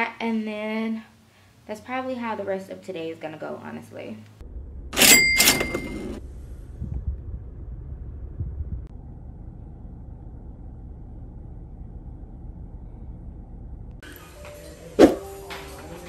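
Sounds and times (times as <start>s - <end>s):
car engine rumbling: 4.4s - 14.0s.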